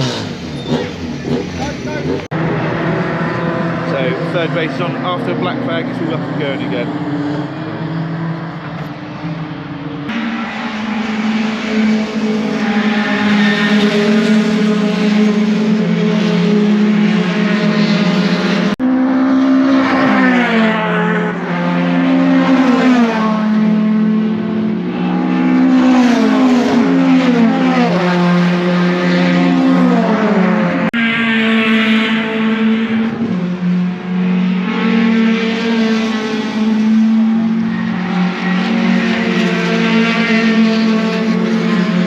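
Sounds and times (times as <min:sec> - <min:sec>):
racing truck engines at full throttle: 0:00.0 - 0:42.0.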